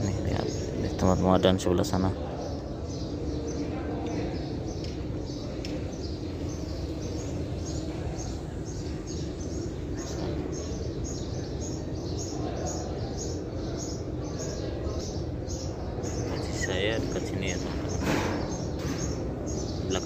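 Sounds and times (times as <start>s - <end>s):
low rumble and murmur of hall: 0.0s - 20.0s
small bird chirping: 0.0s - 20.0s.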